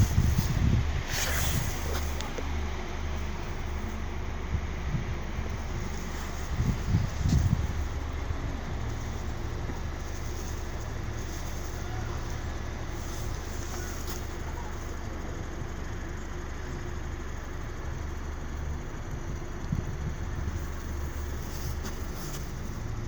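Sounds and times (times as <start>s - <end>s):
car engine drone: 0.0s - 23.0s
road noise: 0.0s - 23.0s.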